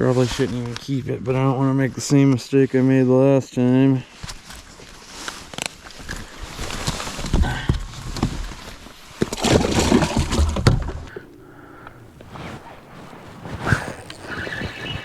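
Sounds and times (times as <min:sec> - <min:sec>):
knocks and handling noise: 0:05.3 - 0:14.3
water sloshing and splashing: 0:08.7 - 0:13.4.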